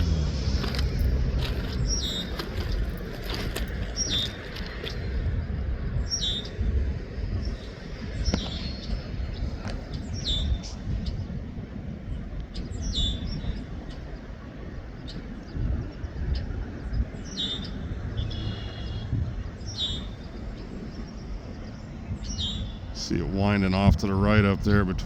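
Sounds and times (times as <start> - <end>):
bird downward-sliding chirp: 0.0 - 5.1
steady low rumble: 0.0 - 25.0.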